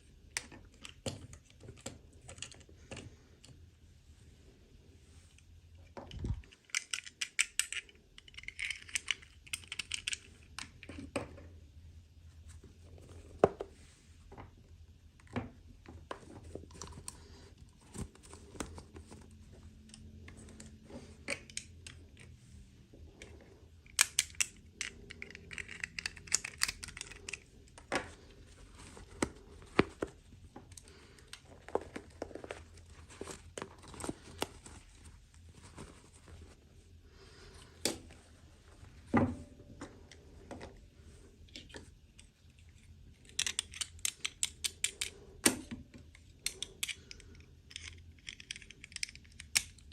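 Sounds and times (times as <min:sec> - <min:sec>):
small plastic pieces clicking: 0:06.4 - 0:11.0, 0:23.8 - 0:27.8, 0:43.2 - 0:45.2, 0:46.1 - 0:49.9
packaging crinkling and rustling: 0:25.2 - 0:36.6.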